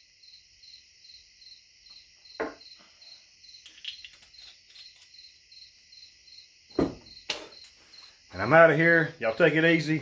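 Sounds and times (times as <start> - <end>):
crickets chirping: 0.0 - 10.0
knock: 2.4 - 2.6, 6.7 - 7.4.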